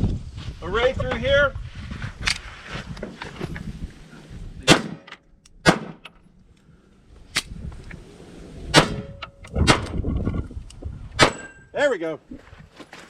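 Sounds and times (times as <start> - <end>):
gunshots: 4.6 - 6.0, 8.7 - 9.1.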